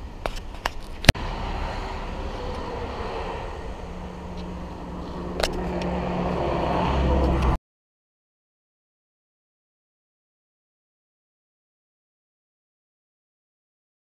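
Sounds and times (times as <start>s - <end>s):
vehicle engine running: 0.9s - 7.6s.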